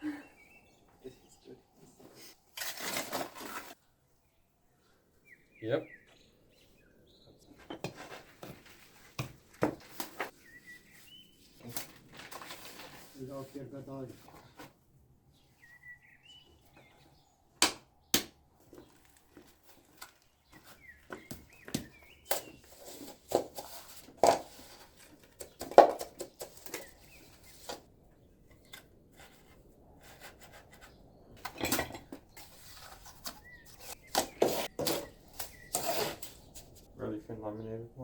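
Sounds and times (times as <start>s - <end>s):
stones and tools knocking: 25.3s - 26.9s.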